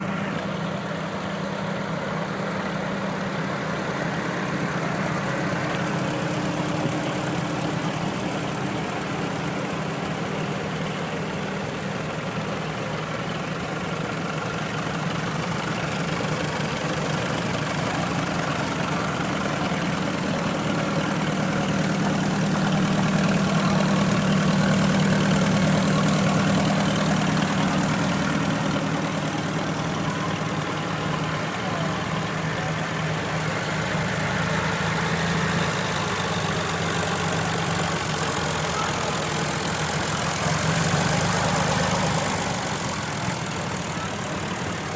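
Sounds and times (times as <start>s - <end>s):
tractor engines running: 0.0s - 44.9s.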